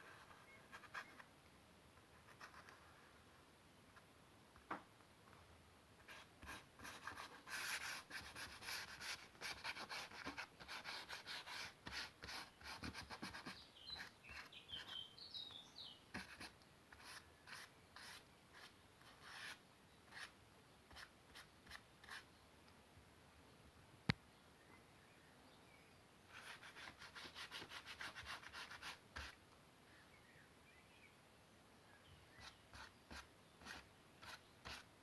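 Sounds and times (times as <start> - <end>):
pen nib scratching on paper: 32.4 - 34.9.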